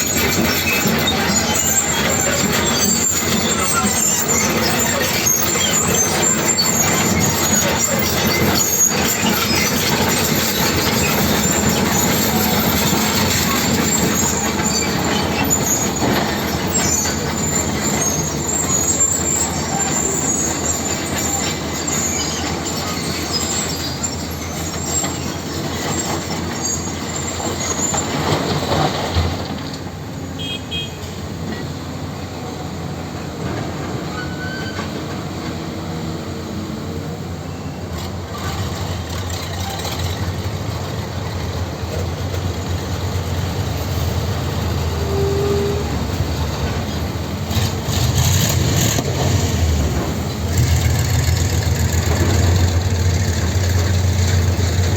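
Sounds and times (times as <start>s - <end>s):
high squeals: 0.0s - 28.9s, 33.8s - 35.4s, 37.4s - 49.0s
tractor engine running: 46.0s - 54.9s.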